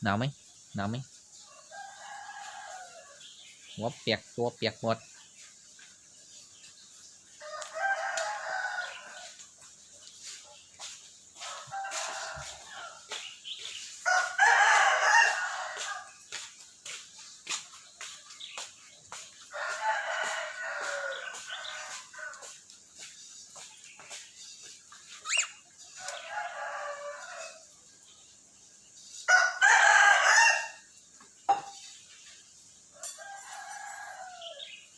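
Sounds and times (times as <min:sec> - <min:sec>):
harsh raspy bird calls: 0:25.2 - 0:25.6.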